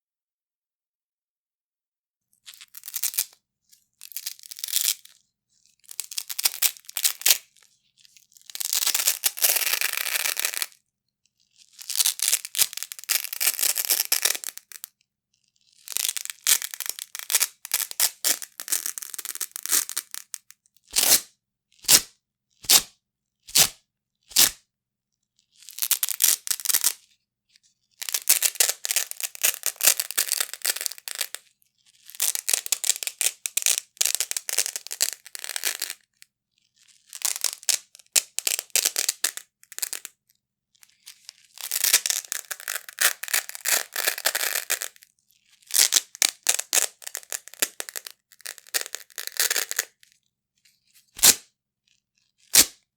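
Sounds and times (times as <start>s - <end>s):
velcro ripping apart: 16.0s - 22.9s, 23.5s - 24.6s, 41.5s - 45.0s, 45.6s - 50.0s, 51.0s - 51.4s, 52.5s - 52.8s.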